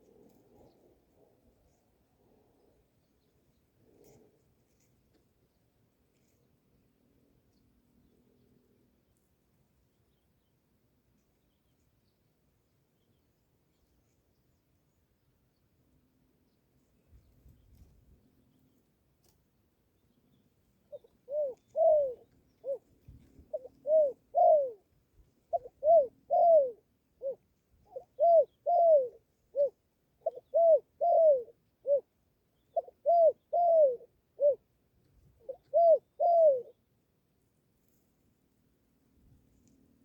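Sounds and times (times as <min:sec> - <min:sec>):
dove cooing: 0:20.9 - 0:24.9, 0:25.5 - 0:34.7, 0:35.4 - 0:36.8.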